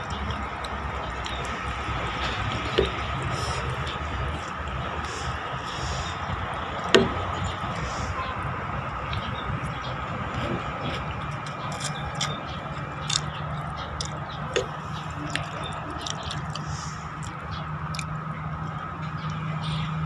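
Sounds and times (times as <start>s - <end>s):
person chewing noodles: 0.0s - 6.9s, 10.4s - 18.8s
wet mouth clicks and smacks: 13.0s - 18.2s.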